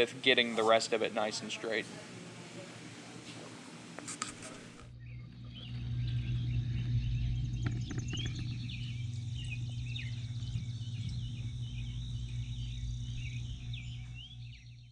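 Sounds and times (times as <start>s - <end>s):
steady low hum: 0.0s - 14.9s
bird chirping: 4.9s - 14.9s.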